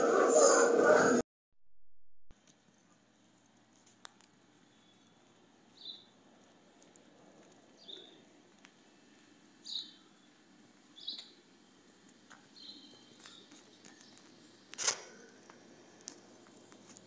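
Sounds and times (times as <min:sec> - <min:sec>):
low outdoor background noise: 0:02.3 - 0:17.0
faint bird chirps: 0:04.6 - 0:06.2, 0:09.6 - 0:10.4, 0:12.5 - 0:14.3.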